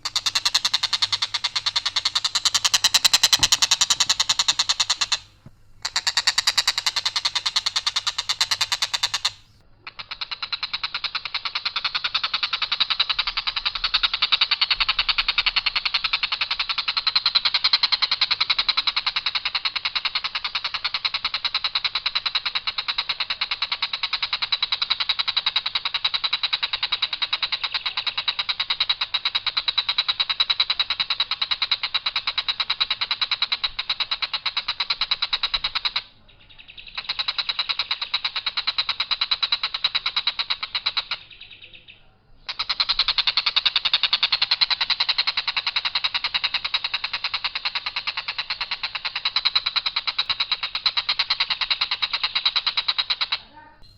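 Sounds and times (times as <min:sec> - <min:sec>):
kingfisher rattling call: 0:00.0 - 0:53.9.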